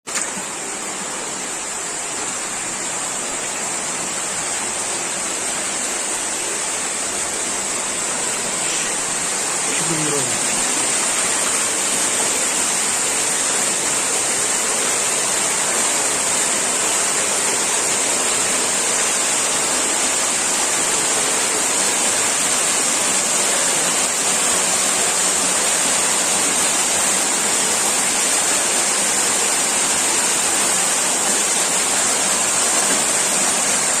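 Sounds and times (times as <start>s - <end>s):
rushing noise with high hiss: 0.2s - 34.0s.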